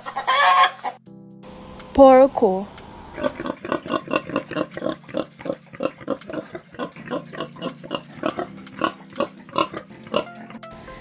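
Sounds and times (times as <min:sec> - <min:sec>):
pig grunting: 0:02.7 - 0:10.6.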